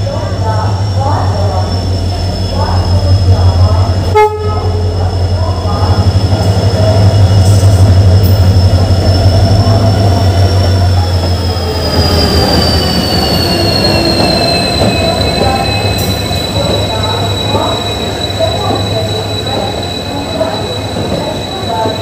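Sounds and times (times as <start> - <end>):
diesel locomotive engine droning: 0.0 - 22.0
high wheel squeal: 0.7 - 22.0.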